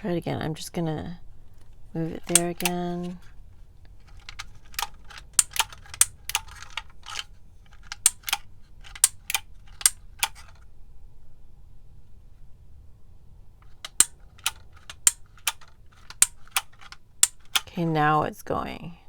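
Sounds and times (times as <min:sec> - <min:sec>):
label maker clicking: 0:02.2 - 0:03.2, 0:04.1 - 0:07.2, 0:07.8 - 0:10.5, 0:13.6 - 0:17.7.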